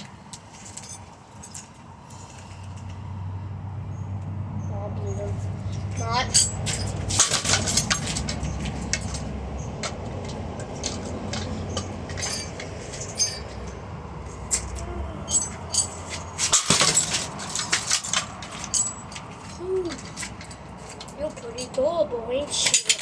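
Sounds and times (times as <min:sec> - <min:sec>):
fan parts clinking and clattering: 0:00.0 - 0:03.2, 0:05.0 - 0:23.0.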